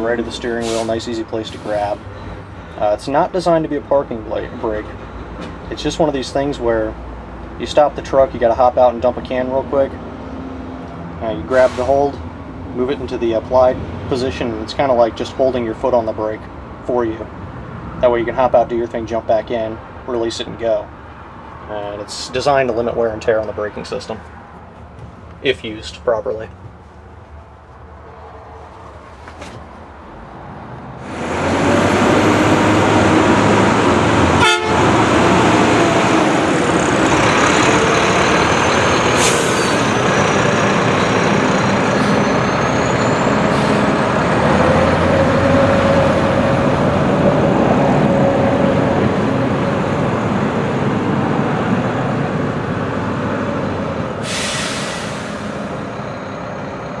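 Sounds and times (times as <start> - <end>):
truck engine running: 31.0 - 54.2.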